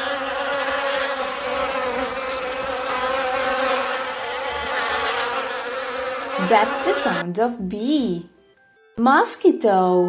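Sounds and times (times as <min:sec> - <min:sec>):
bees buzzing: 0:00.0 - 0:07.4.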